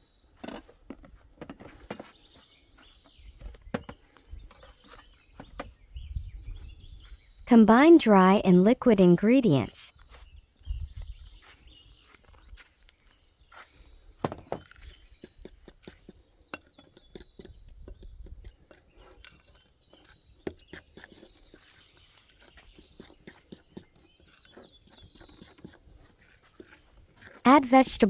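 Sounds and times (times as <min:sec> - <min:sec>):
utensil scraping a bowl: 0:14.9 - 0:28.0.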